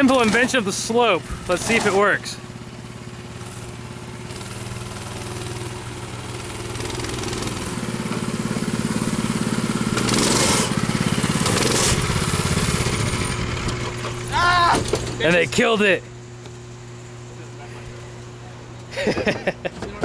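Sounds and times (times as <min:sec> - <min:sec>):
minibike engine running: 0:00.0 - 0:15.9.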